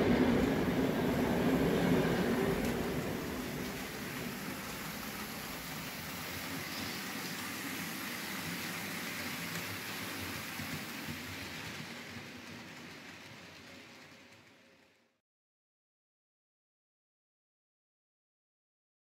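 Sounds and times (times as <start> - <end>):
model train rolling on metal track: 0.0 - 15.2.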